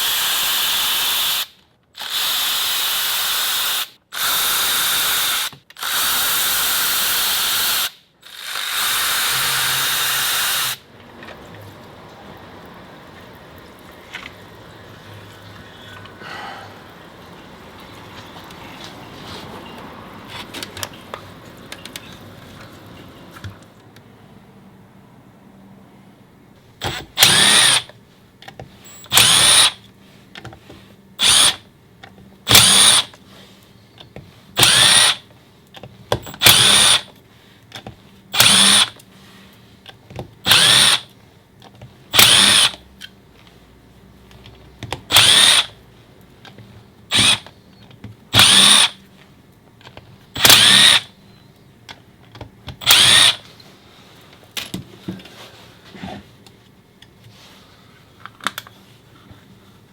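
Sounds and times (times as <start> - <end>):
cordless drill short bursts: 0.0 - 10.8, 26.8 - 27.9, 28.9 - 29.8, 31.2 - 31.6, 32.5 - 33.1, 34.6 - 35.2, 36.3 - 37.1, 38.3 - 39.0, 40.5 - 41.1, 42.1 - 42.8, 45.1 - 45.8, 47.1 - 47.5, 48.3 - 49.0, 50.4 - 51.1, 52.8 - 53.4.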